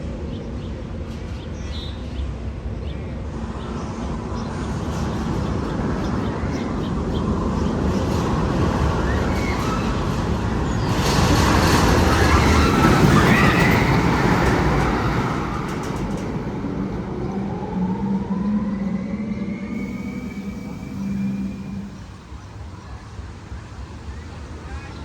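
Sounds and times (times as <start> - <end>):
roller coaster rushing on track: 0.0 - 25.0
low hum with rising tones: 15.7 - 24.2.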